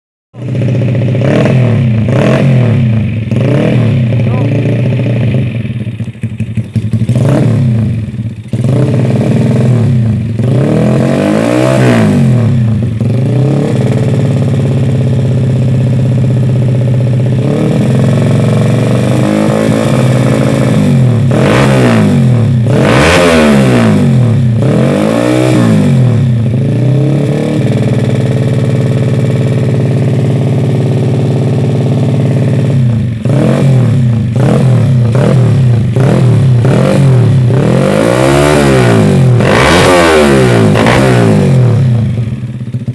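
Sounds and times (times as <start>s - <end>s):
motorcycle engine idling and revving: 0.3s - 42.9s.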